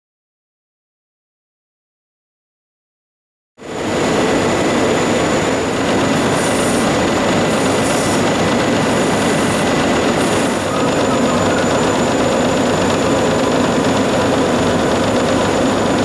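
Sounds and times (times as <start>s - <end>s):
surface grinder whining: 4.1s - 16.0s.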